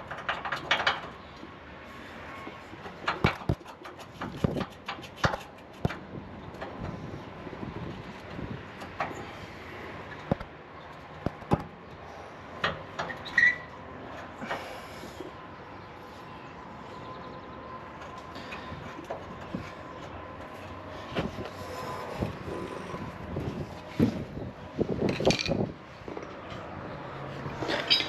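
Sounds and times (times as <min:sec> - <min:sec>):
steady background noise: 0:00.0 - 0:28.0
metallic knocks and clanks of tools: 0:27.6 - 0:28.0.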